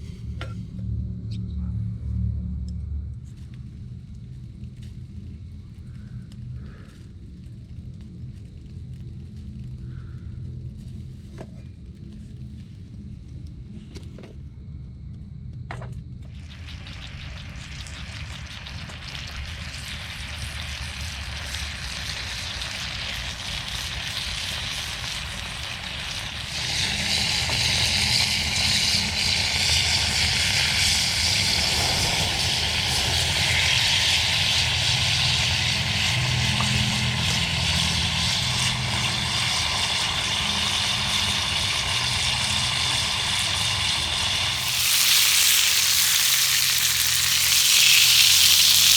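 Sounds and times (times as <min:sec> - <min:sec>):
food sizzling in a pan: 0:16.3 - 0:48.9
wood fire rumbling: 0:16.3 - 0:48.9.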